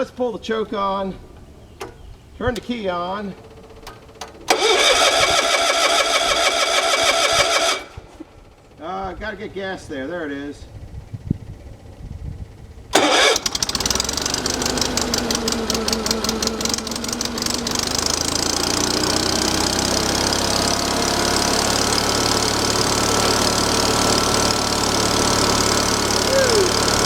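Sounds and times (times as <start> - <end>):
small gasoline engine starting and running: 1.3 - 9.0, 11.9 - 27.0.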